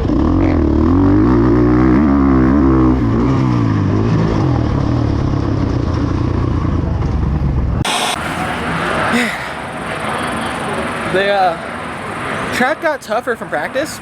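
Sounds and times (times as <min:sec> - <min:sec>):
dirt bike engine revving: 0:00.0 - 0:06.8.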